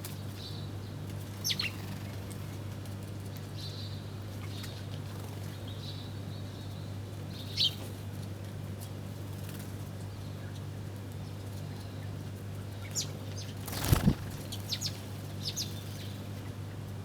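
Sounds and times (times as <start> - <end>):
small birds chirping: 1.4 - 2.2, 12.8 - 16.6
flurry of wingbeats: 13.6 - 14.9
steady low hum: 13.6 - 16.6.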